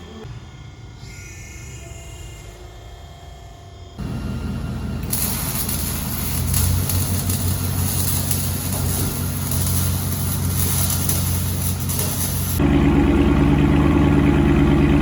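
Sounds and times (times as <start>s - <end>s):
car engine running: 4.0s - 15.0s.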